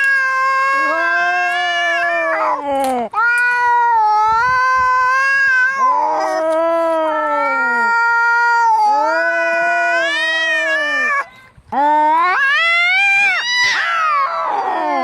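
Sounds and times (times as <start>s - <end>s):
sliding cat call: 0.0s - 2.6s
cats yowling in a fight: 0.0s - 15.0s.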